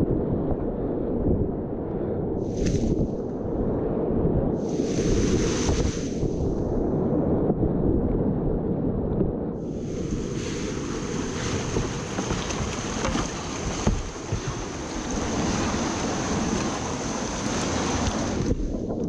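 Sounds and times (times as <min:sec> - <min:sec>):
wind buffeting microphone: 0:00.0 - 0:19.0
whitewater rushing: 0:04.7 - 0:06.1, 0:09.8 - 0:18.6.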